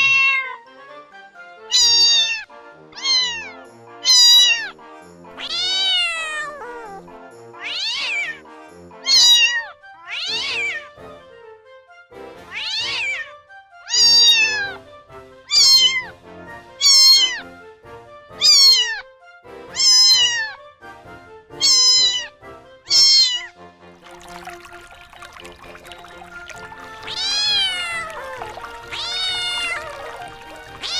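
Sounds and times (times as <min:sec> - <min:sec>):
soft background music: 0:00.0 - 0:30.9
kitten meowing: 0:01.7 - 0:04.7, 0:05.4 - 0:07.0, 0:07.6 - 0:08.4, 0:09.1 - 0:10.8, 0:12.5 - 0:13.2, 0:13.9 - 0:14.8, 0:15.5 - 0:16.1, 0:16.8 - 0:17.4, 0:18.4 - 0:19.0, 0:19.8 - 0:20.6, 0:21.6 - 0:22.3, 0:22.9 - 0:23.5, 0:27.0 - 0:30.9.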